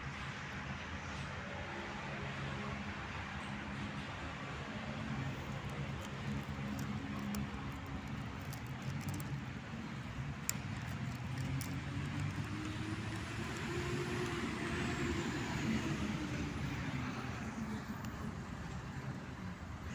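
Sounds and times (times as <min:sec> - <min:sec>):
faint clicks: 0:05.2 - 0:15.8
vehicle engine passing: 0:10.5 - 0:18.9.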